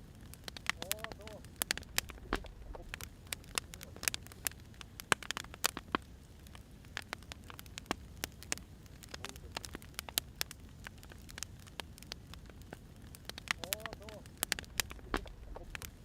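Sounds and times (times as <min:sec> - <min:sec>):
fire crackling and popping: 0:00.0 - 0:16.0
low rumble of burning logs: 0:00.0 - 0:16.0.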